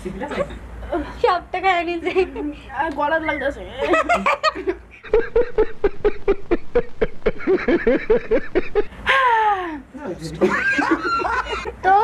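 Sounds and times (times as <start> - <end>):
person laughing: 4.0 - 9.6
person crying out: 9.1 - 9.8.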